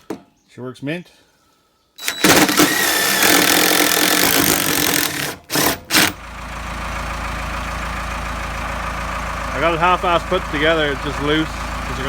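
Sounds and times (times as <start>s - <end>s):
impact gun bursts: 2.0s - 6.2s.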